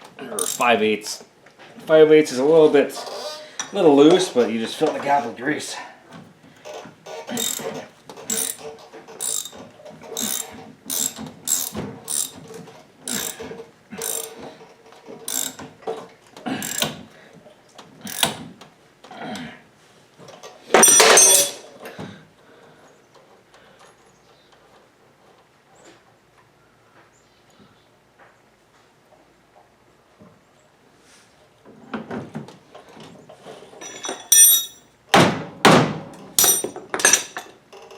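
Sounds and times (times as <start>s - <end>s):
hand tool clicking on metal: 0.4s - 0.7s.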